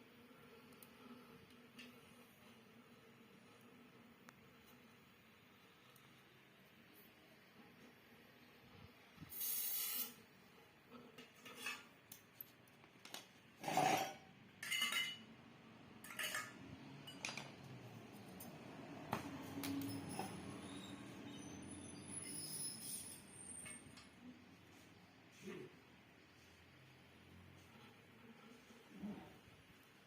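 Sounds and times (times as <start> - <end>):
metal tools clinking and scraping: 11.2 - 12.6, 13.6 - 15.3, 16.0 - 17.5.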